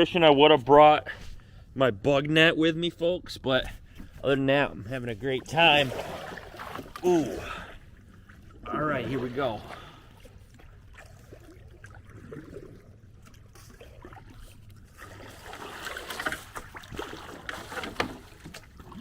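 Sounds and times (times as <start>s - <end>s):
kayak paddle splashing in water: 5.4s - 19.0s.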